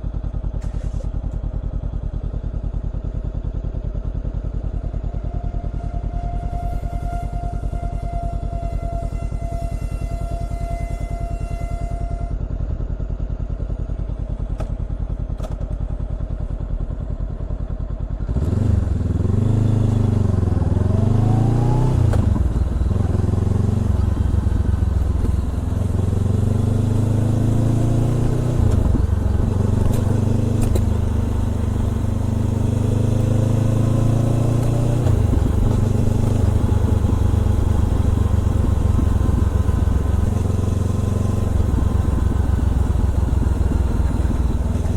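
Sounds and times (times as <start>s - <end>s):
motorcycle engine revving: 18.1s - 44.9s.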